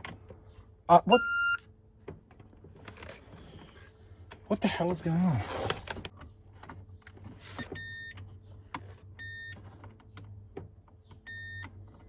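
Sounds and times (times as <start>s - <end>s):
electronic warning beeps: 0.9s - 1.6s, 7.7s - 8.2s, 9.2s - 9.6s, 11.3s - 11.7s.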